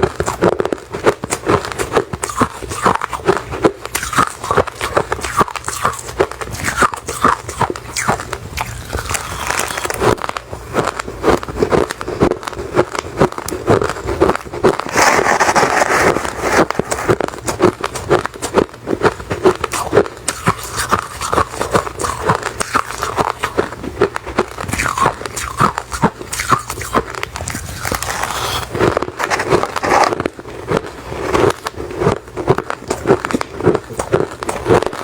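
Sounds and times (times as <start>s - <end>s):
chewing crushed ice: 0.0s - 35.0s.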